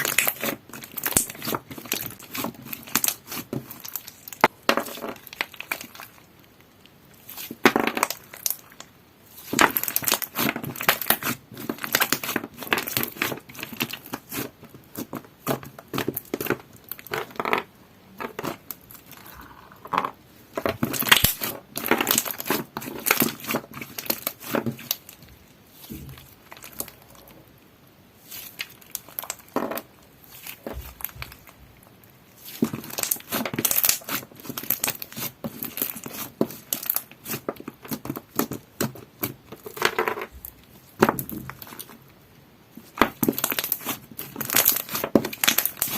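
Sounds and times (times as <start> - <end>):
slime and ice crackling when squeezed: 0.0 - 17.6, 20.4 - 27.5, 28.2 - 42.1, 42.7 - 45.9.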